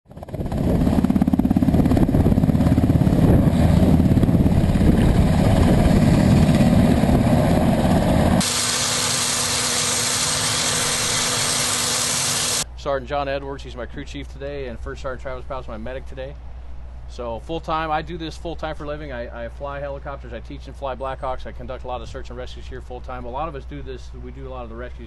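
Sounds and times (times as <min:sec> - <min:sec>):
helicopter rotor beat: 0:00.1 - 0:12.6
loud hiss over low hum: 0:08.4 - 0:19.4.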